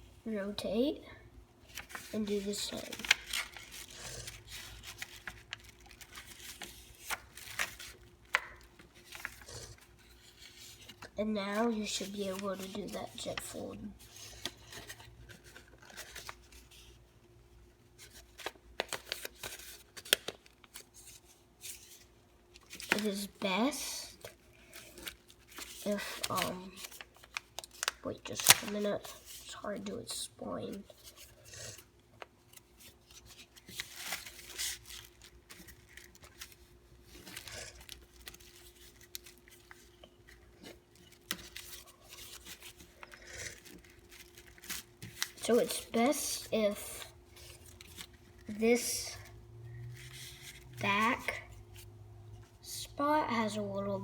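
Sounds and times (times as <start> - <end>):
paper crinkling: 1.7 - 17.1, 18.0 - 23.4, 24.1 - 29.9, 30.9 - 46.2, 47.2 - 51.9
paper rustling: 1.7 - 17.1, 24.1 - 30.2, 32.2 - 51.4.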